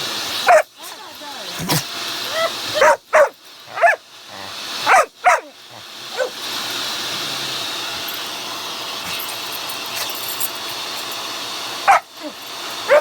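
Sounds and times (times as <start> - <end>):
vacuum cleaner whirring: 0.0 - 13.0
puppy barking: 0.4 - 0.7, 1.6 - 4.0, 4.8 - 6.4, 11.9 - 12.2.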